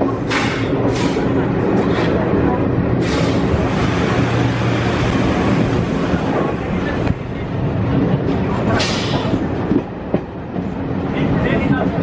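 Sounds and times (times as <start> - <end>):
train wheels clattering on track: 0.0 - 12.0.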